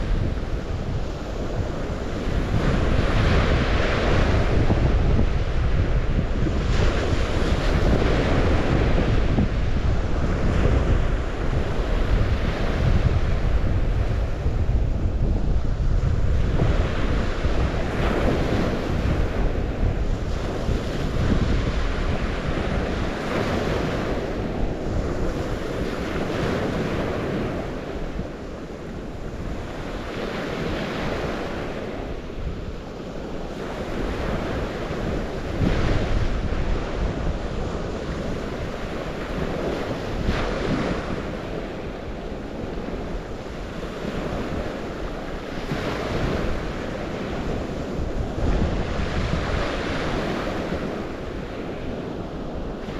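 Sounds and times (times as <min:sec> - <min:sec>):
waves washing onto shore: 0:00.0 - 0:52.9
wind rumbling on microphone: 0:00.0 - 0:52.9.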